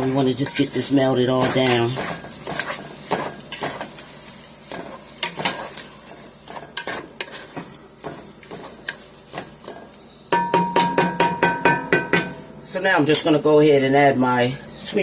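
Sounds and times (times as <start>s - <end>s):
spoon scraping a pan: 0.0s - 9.9s
butter sizzling: 0.0s - 10.3s
sharp ringing knocks: 10.3s - 12.4s.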